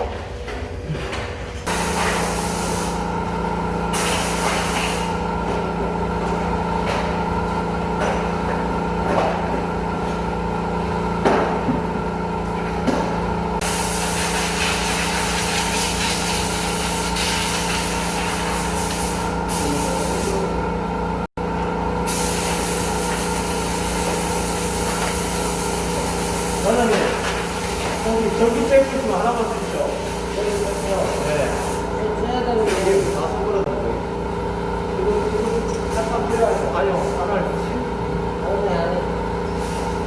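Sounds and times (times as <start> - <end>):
machine humming: 0.4 - 36.3.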